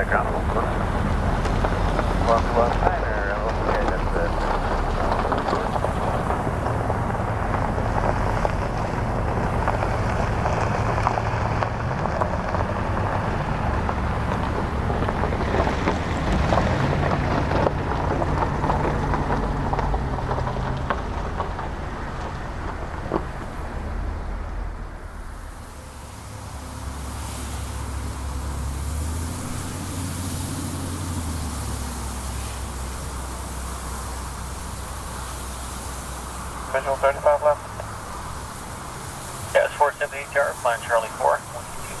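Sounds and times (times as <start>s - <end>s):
jet engines roaring: 0.0s - 10.1s, 35.9s - 42.0s.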